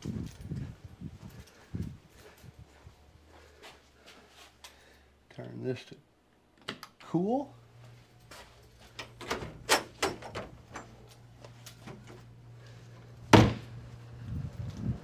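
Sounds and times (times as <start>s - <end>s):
steady low hum: 7.2s - 15.0s
door shutting hard: 9.0s - 11.0s, 13.3s - 13.8s.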